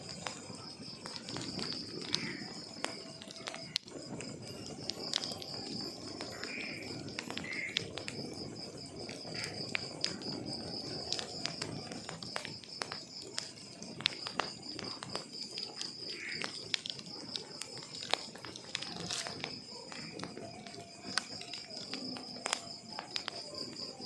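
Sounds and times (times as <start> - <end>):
fire burning hiss: 0.0 - 24.0
high insect-like trill: 0.0 - 24.0
logs crackling and popping: 0.0 - 24.0.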